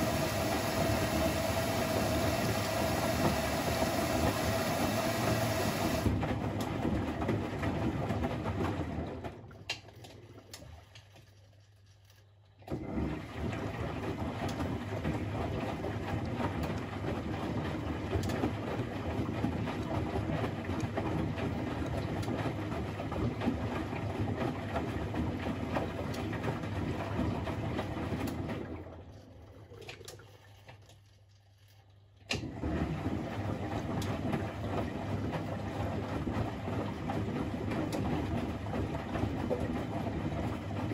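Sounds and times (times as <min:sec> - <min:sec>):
washing machine drum turning: 0:00.0 - 0:09.4.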